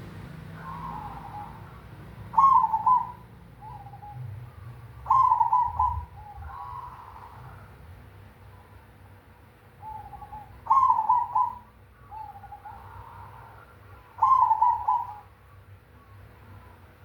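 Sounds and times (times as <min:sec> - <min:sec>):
dove cooing: 0:00.0 - 0:07.8, 0:09.8 - 0:15.4.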